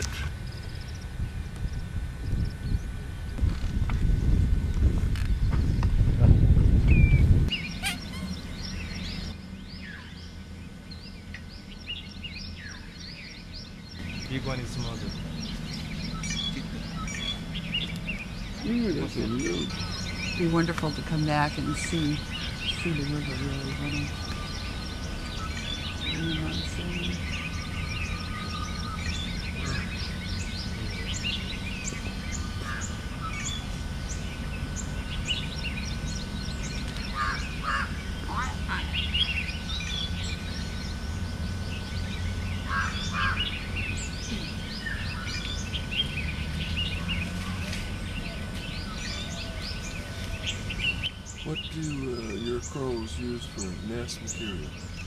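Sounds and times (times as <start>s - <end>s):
low background hum: 0.0s - 55.0s
low rumbling noise: 0.0s - 55.0s
small birds chirping chorus: 0.0s - 55.0s.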